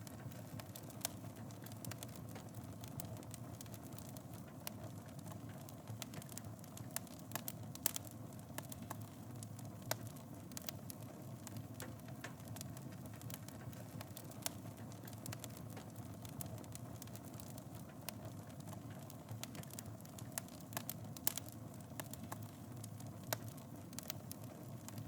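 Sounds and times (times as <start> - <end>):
fire crackling and popping: 0.0 - 25.0.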